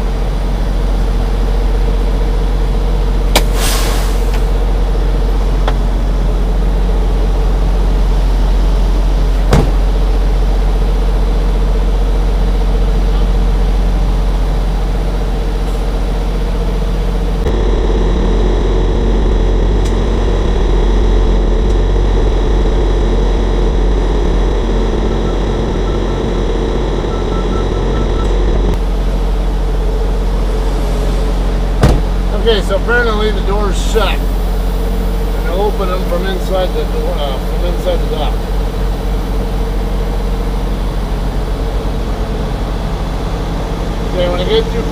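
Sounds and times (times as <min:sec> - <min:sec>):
diesel truck engine running: 0:17.4 - 0:28.8.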